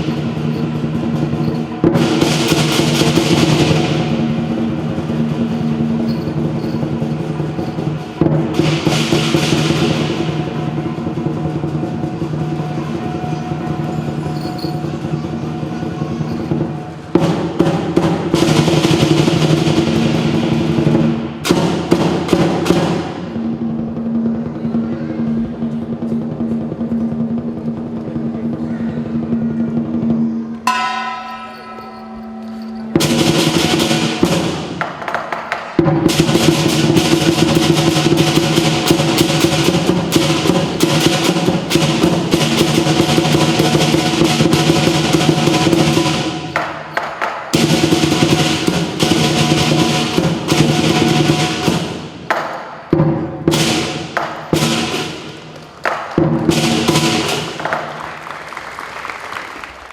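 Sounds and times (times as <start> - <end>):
cymbals clashing: 0.0 - 58.0
big drum rolls: 0.0 - 59.1
gong ringing: 30.6 - 34.5.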